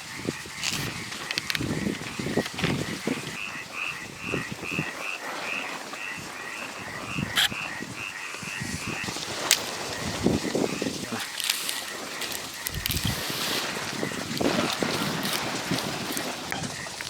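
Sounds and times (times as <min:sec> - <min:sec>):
sharp clicks: 0:00.6 - 0:02.8, 0:11.2 - 0:13.2
animal chirping: 0:07.0 - 0:08.6.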